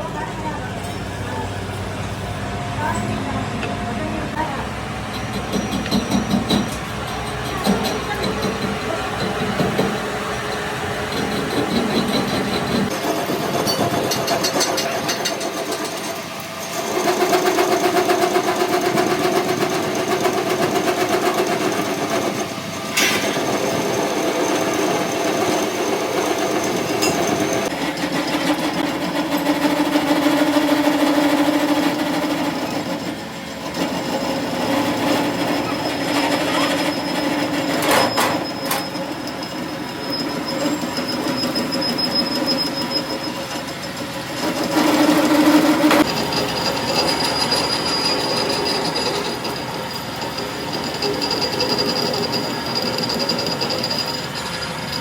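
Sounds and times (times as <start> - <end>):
droning squealing workshop machine: 0.0 - 55.0.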